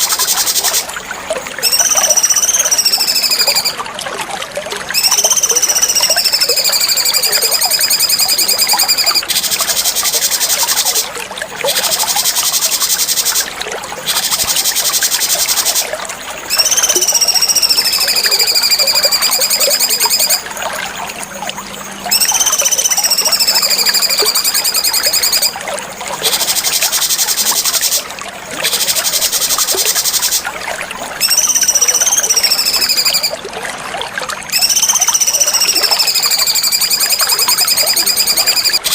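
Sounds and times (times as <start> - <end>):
trickling water: 0.0 - 38.9
songbird singing: 4.9 - 11.0, 22.0 - 25.5, 34.5 - 38.9.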